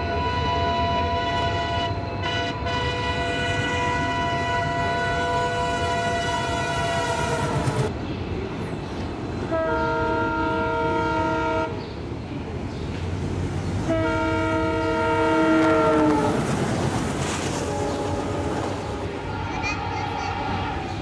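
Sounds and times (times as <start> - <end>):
train horn blasts: 0.0 - 7.9, 9.5 - 11.8, 13.9 - 16.6, 17.5 - 19.6
train coaches rumbling past: 0.0 - 21.0.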